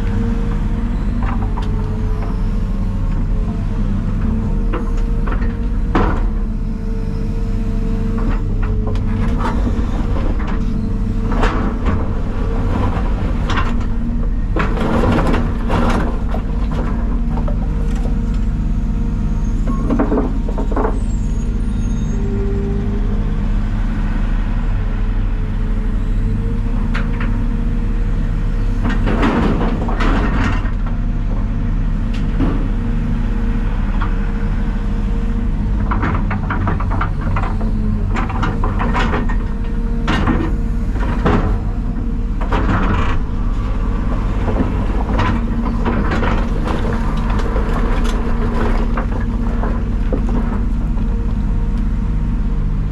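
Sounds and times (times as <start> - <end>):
diesel truck engine running: 0.0 - 52.9
rattles and knocks: 11.3 - 18.2, 35.8 - 51.4.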